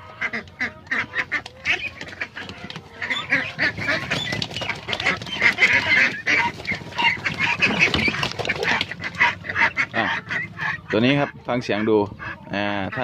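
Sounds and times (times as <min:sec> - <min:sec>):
ducks quacking: 0:00.0 - 0:13.0.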